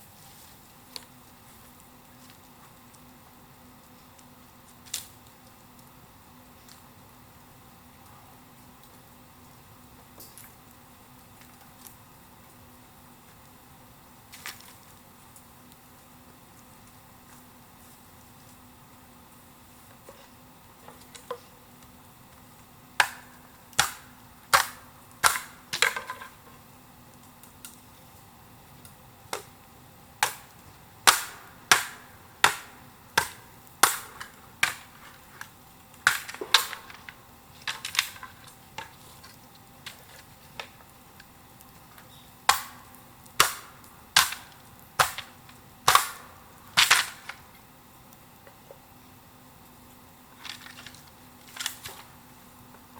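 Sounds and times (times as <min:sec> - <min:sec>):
sharp cracks or knocks: 0:23.0 - 0:26.3, 0:30.2 - 0:35.2, 0:36.0 - 0:38.9, 0:42.5 - 0:47.4.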